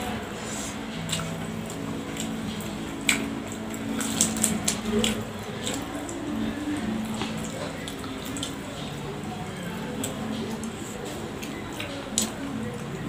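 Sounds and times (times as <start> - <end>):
chewing and mouth clicks: 1.1 - 9.0.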